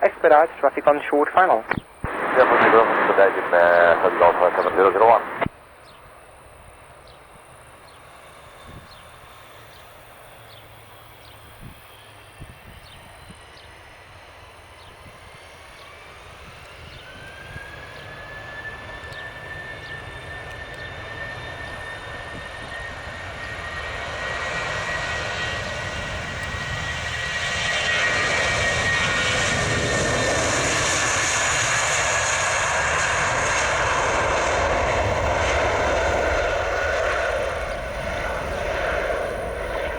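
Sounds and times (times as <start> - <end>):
jet engines spooling up: 0.0 - 5.5, 27.8 - 39.9
rising engine whine: 0.0 - 5.5, 32.2 - 39.9.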